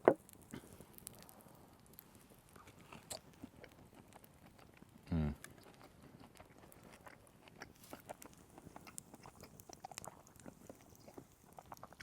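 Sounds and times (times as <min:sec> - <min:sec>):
man chewing: 0:02.6 - 0:12.0.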